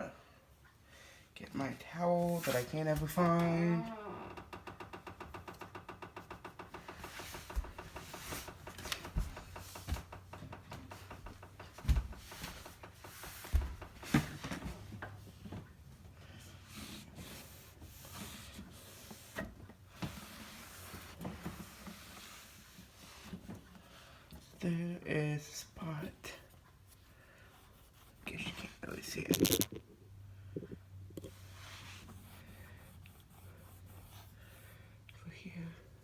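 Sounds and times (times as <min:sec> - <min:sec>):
light knocks and thumps: 0:04.6 - 0:15.6.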